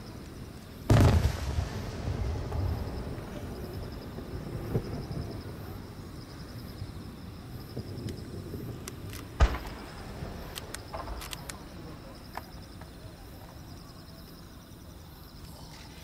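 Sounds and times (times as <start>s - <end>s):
faint firework crackles: 0.0s - 16.0s
firework bang: 0.9s - 5.5s, 8.7s - 11.4s.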